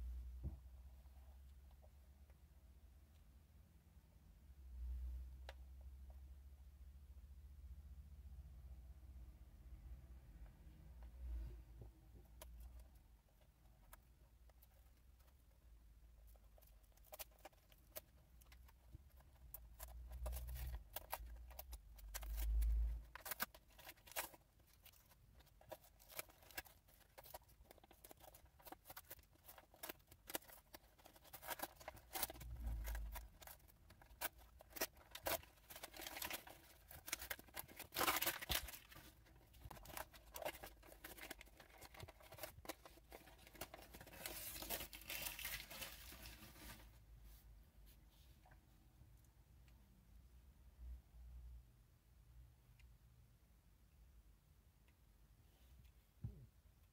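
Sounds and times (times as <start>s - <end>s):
crinkling or tearing: 16.2s - 47.0s.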